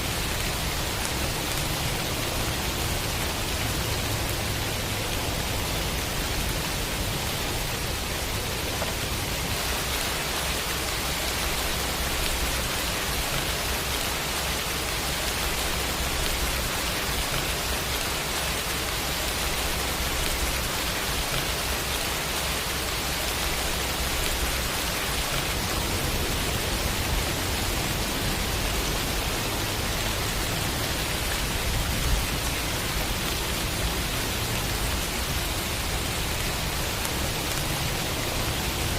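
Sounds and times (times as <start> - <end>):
rain hissing: 0.0 - 38.9.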